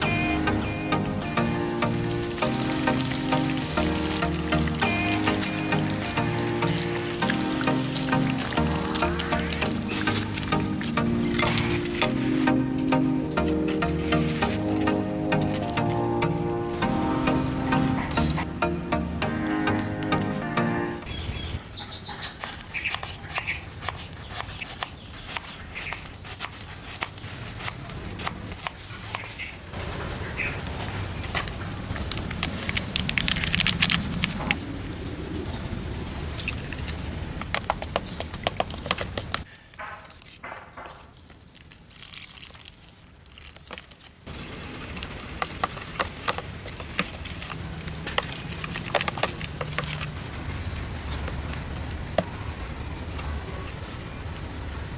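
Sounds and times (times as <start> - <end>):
birds chirping: 0.0 - 23.6.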